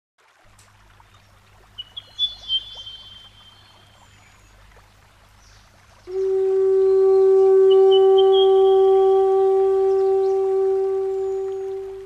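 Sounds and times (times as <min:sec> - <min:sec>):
stream water trickling: 0:00.2 - 0:12.0
high bird chirps: 0:01.8 - 0:03.8.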